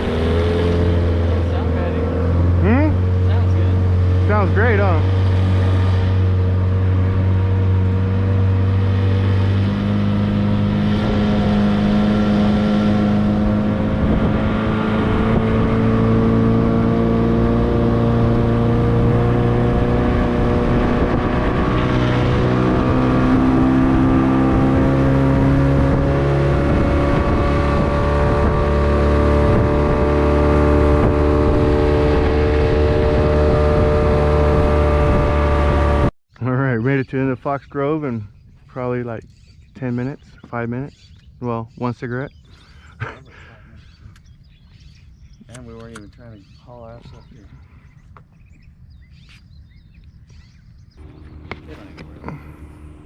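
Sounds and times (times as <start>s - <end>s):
outboard motor running: 0.0s - 36.0s, 51.0s - 53.0s
wind and water rushing: 0.0s - 36.1s.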